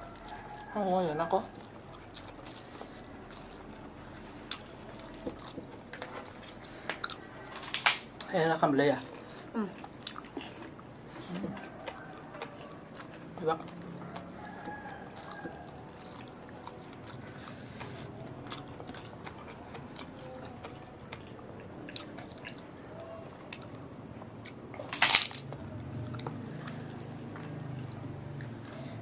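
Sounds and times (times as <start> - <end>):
people chewing and smacking: 0.0 - 29.0
loud crunch: 24.9 - 25.4.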